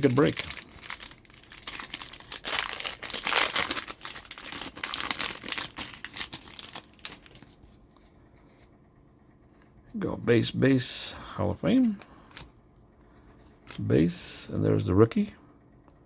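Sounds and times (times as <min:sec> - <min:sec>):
plastic wrapping crinkling and tearing: 0:00.0 - 0:07.7.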